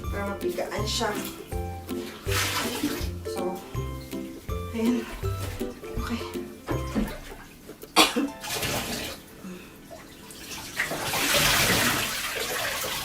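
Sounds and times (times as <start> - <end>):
water splashing into bathtub: 0.4 - 13.0
wet cloth wrung out by hand: 1.1 - 3.2, 8.4 - 13.0.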